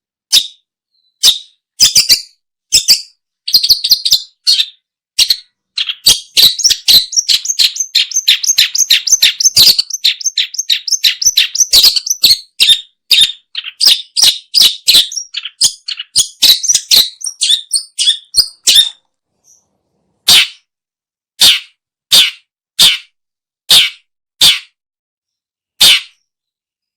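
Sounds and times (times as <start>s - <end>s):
shrike chattering calls: 5.8s - 12.8s, 13.6s - 19.0s.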